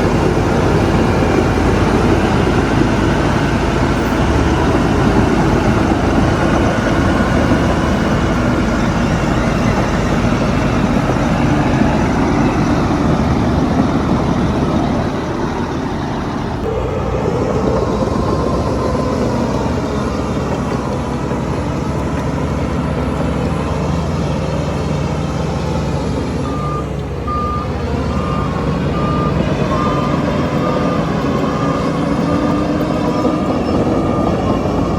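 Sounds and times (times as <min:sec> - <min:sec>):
heavy diesel machinery engines: 0:00.0 - 0:34.9.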